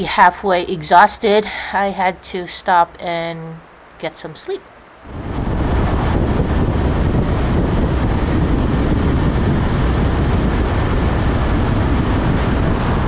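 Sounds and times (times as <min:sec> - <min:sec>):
wind rushing over microphone: 0:04.9 - 0:13.0
motorcycle road noise: 0:05.0 - 0:13.0.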